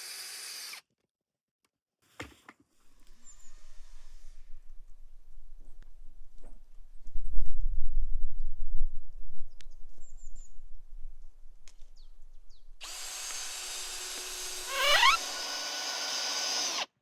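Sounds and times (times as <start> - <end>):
small electric motor whining: 0.0 - 0.8, 12.8 - 16.9.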